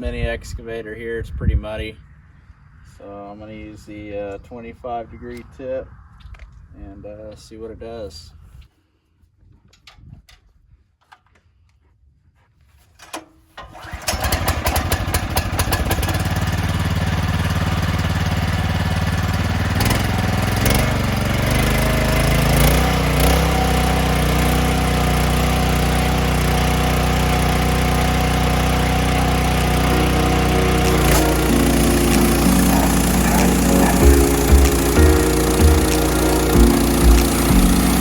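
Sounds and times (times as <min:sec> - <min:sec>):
engine starting and running: 0:13.6 - 0:38.0.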